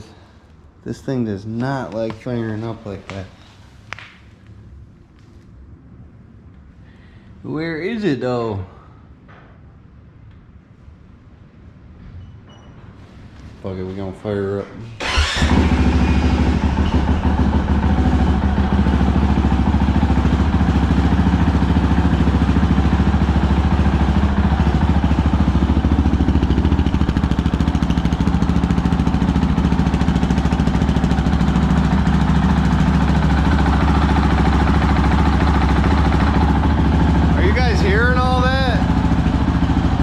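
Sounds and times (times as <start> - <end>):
person talking: 0.8 - 3.4, 37.3 - 39.0
motorcycle engine idling: 15.0 - 40.0.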